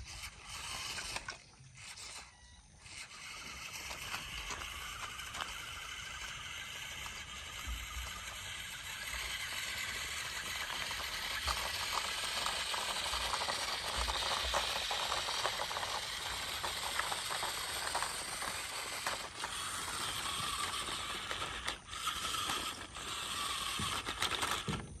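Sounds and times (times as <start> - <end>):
toy motor whirring: 0.0 - 25.0.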